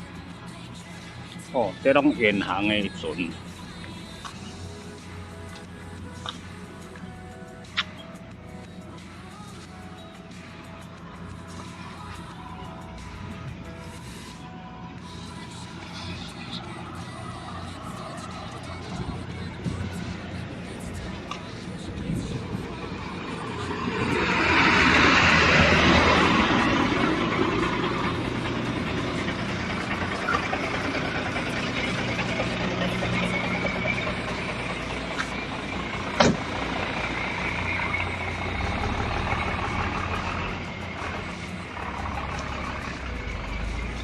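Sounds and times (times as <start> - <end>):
traffic hum: 0.0 - 44.0
large vehicle passing: 15.8 - 44.0.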